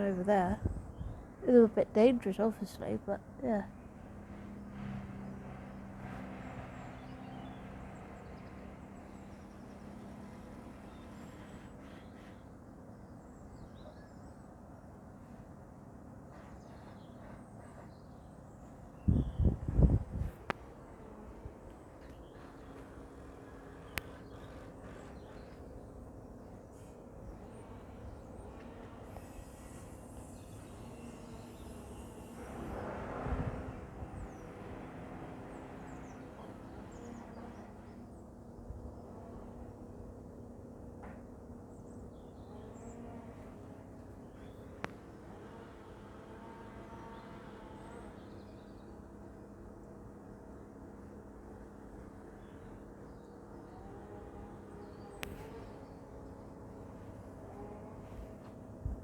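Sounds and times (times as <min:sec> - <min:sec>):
small birds chirping: 0:00.0 - 0:15.5, 0:16.3 - 0:32.8, 0:33.4 - 0:39.9, 0:52.2 - 0:59.0
distant vehicles humming: 0:00.0 - 0:59.0
faint bird chirps: 0:07.0 - 0:14.5.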